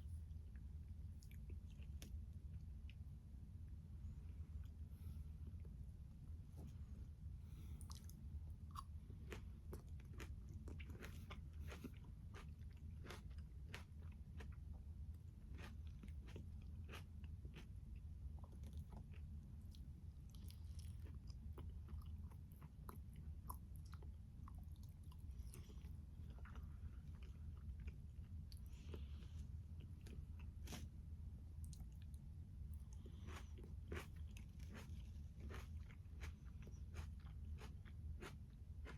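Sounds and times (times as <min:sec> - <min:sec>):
low steady hum: 0:00.0 - 0:38.9
chewing and biting salad: 0:07.8 - 0:31.0, 0:31.6 - 0:38.9.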